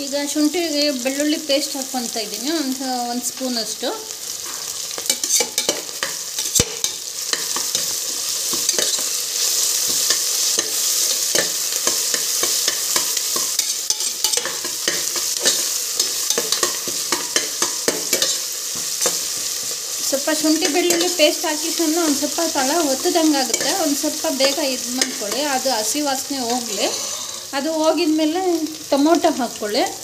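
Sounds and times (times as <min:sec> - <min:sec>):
vegetables sizzling in hot oil: 0:00.0 - 0:30.0
metal spatula scraping pot: 0:04.4 - 0:19.7, 0:26.4 - 0:27.5.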